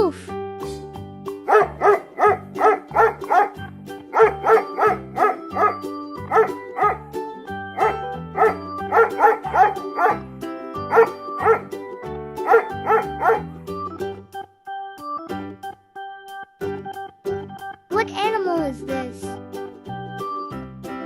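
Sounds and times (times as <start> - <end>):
dog barking: 1.4 - 7.0, 7.8 - 10.2, 10.9 - 11.7, 12.4 - 13.5.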